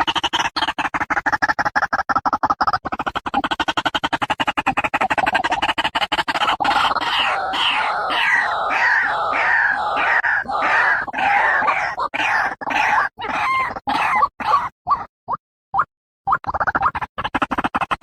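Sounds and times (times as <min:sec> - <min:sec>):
waterhen calling loudly: 0:06.7 - 0:14.7.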